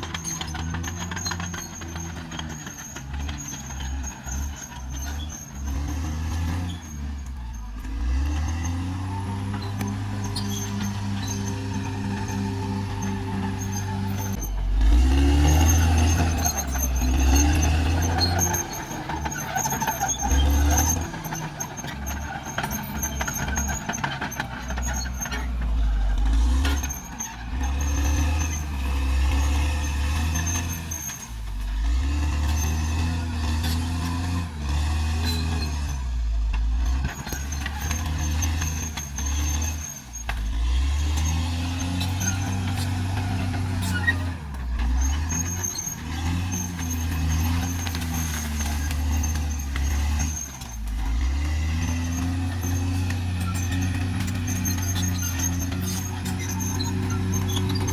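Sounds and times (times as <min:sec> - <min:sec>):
clanking running gear: 0:00.0 - 0:34.2, 0:35.0 - 0:57.9
bulldozer diesel engine: 0:00.0 - 0:57.9.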